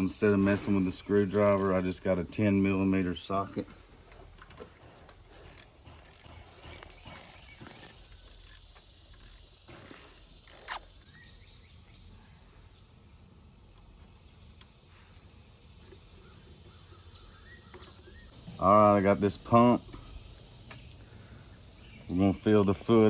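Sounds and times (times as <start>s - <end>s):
ratchet wrench clicking: 1.3s - 1.8s, 5.0s - 10.8s.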